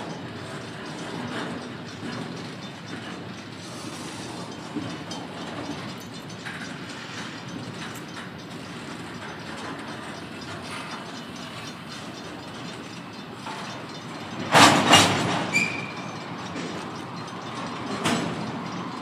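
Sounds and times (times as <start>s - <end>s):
freight cars rumbling on rails: 0.0s - 19.0s
loud metallic clanks: 0.9s - 19.0s
high squeal: 11.4s - 16.4s.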